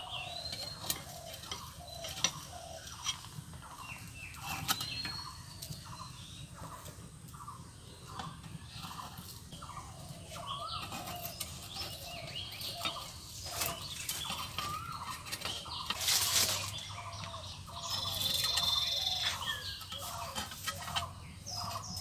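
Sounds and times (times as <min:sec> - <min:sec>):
birds calling and chirping: 0:00.0 - 0:22.0.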